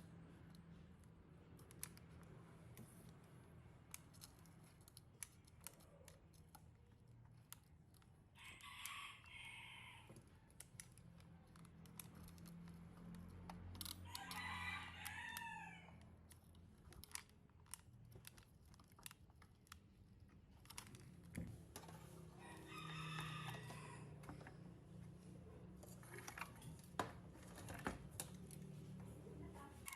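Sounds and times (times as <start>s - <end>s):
rooster crowing: 8.5s - 10.1s, 14.0s - 16.0s, 22.4s - 24.3s.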